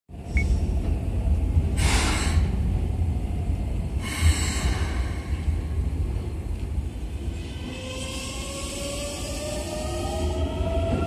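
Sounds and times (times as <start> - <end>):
steady low rumble: 0.1 - 7.4.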